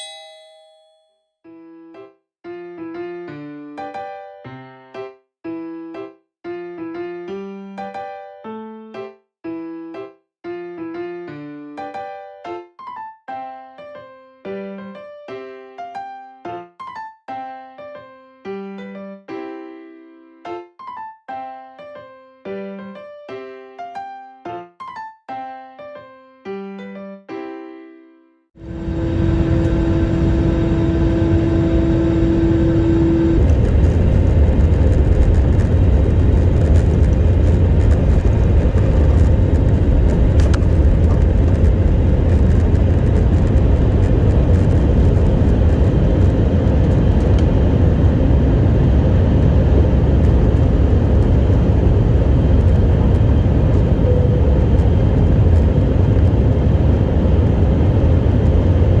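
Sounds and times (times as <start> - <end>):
vehicle interior noise: 28.6 - 59.0.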